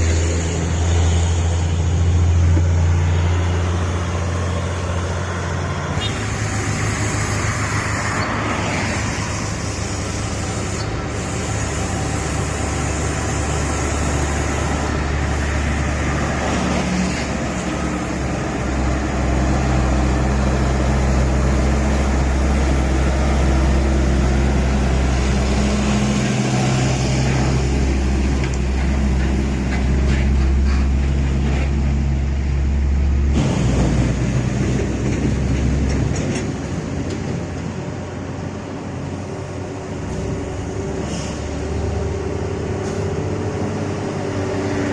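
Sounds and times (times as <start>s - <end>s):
heavy vehicle engine humming: 0.0s - 44.9s.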